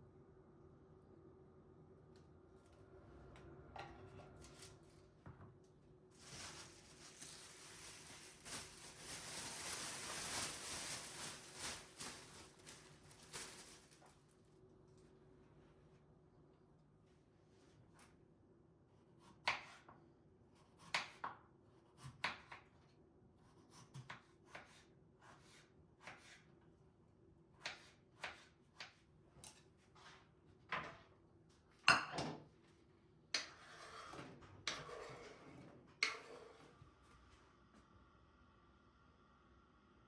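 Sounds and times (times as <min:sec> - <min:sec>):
rustling noise: 0:06.1 - 0:14.5.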